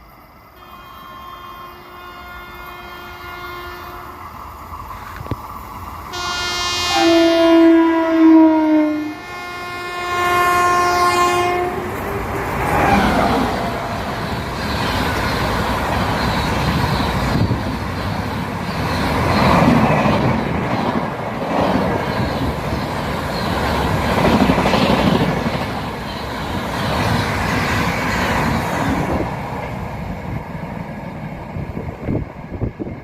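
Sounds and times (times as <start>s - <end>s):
train horn: 0.6s - 4.2s, 6.1s - 15.0s
train rumbling and clattering past: 10.4s - 33.0s.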